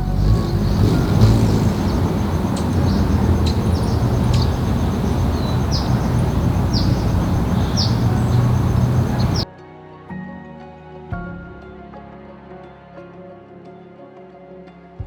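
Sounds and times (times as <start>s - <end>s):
loud steady low rumble: 0.0s - 9.4s
high bird chirps: 0.2s - 9.4s.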